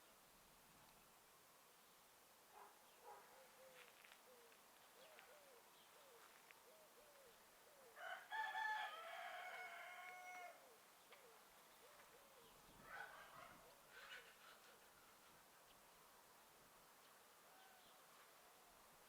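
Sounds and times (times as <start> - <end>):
rooster crowing: 8.0 - 10.7.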